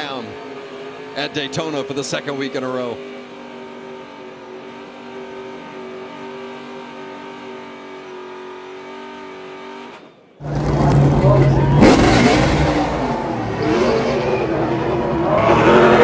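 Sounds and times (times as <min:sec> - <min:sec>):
race truck engine revving: 0:10.4 - 0:16.0.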